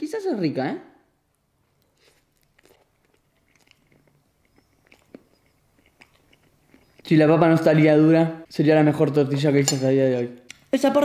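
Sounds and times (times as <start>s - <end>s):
faint chewing mouth clicks: 1.7s - 7.1s.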